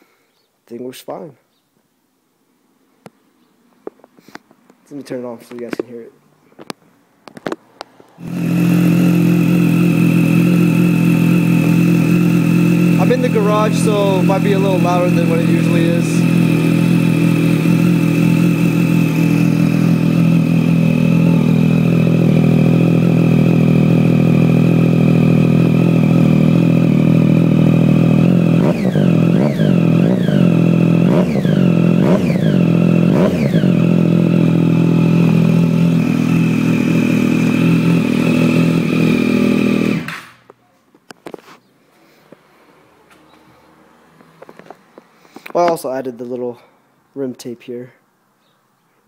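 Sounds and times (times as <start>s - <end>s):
motorcycle engine idling and revving: 7.3s - 40.6s, 42.3s - 45.1s.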